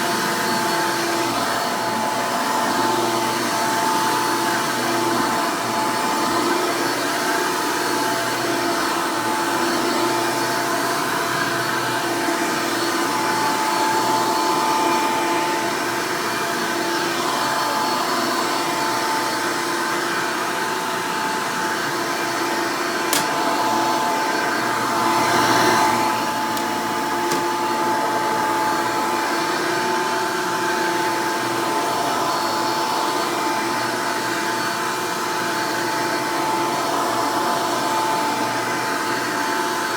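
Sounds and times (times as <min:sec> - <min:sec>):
vacuum cleaner motor whine: 0:00.0 - 0:39.9
sharp click: 0:23.1 - 0:23.4.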